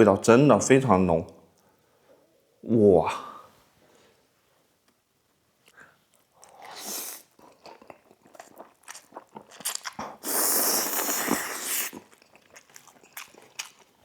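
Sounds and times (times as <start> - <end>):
wet chewing and smacking: 6.1 - 14.0
loud slurp of noodles: 6.5 - 7.3, 10.1 - 12.2.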